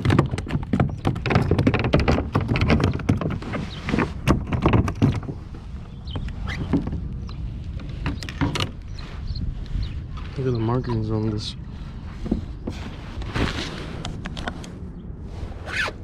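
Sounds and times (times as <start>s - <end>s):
knocks and taps on plastic kayak: 0.0s - 5.4s.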